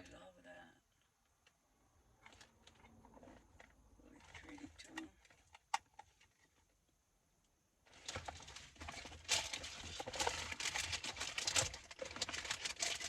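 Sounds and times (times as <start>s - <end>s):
packaging rustling and crinkling: 7.9s - 13.0s.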